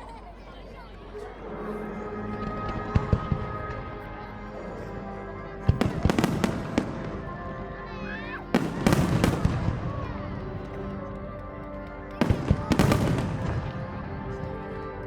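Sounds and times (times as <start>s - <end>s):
music: 0.0s - 15.0s
fireworks bursting: 5.7s - 7.4s, 8.4s - 10.9s, 11.9s - 14.8s.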